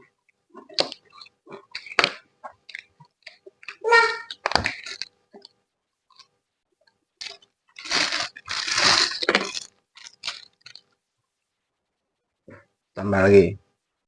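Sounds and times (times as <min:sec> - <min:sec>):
person chewing crunchy food: 0:00.0 - 0:05.5, 0:06.1 - 0:06.3, 0:07.2 - 0:10.9.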